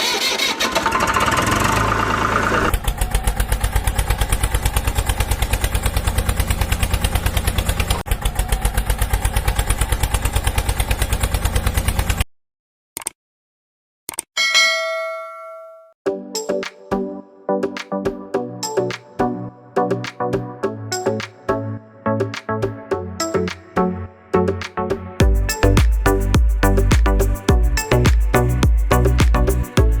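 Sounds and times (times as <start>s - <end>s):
engine revving and idling: 0.7s - 12.2s.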